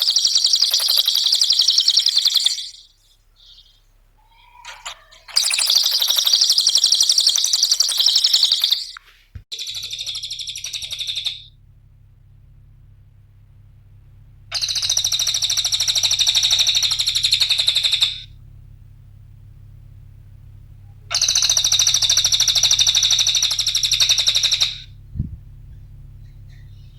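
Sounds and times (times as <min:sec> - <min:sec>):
songbird chatter trills: 0:00.0 - 0:11.5, 0:14.5 - 0:18.3, 0:21.1 - 0:24.9, 0:25.7 - 0:26.9
faint low hum: 0:00.0 - 0:26.9.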